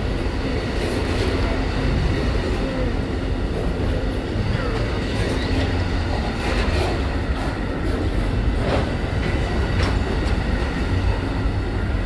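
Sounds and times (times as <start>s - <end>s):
train cars rumbling past: 0.0s - 12.0s.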